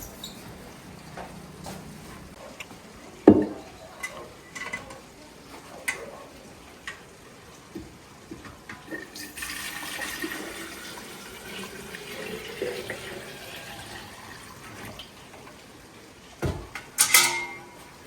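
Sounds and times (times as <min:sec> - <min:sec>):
kitchenware clattering: 0:00.0 - 0:00.7, 0:03.2 - 0:05.1, 0:16.4 - 0:18.0
water running from a tap: 0:08.7 - 0:15.7
thump: 0:16.4 - 0:16.7.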